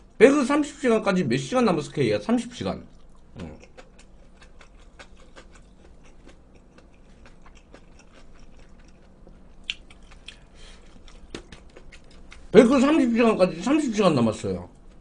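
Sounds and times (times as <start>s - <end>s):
person chewing wetly: 2.9s - 12.5s.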